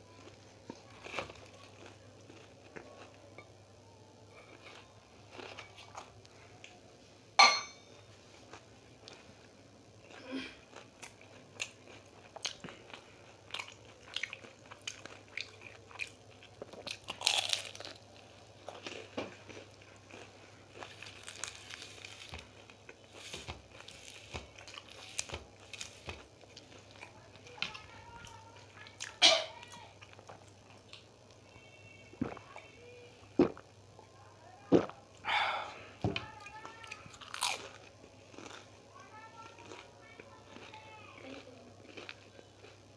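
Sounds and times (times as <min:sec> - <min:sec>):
crunching and chewing food: 0:00.0 - 0:07.1, 0:07.9 - 0:42.9.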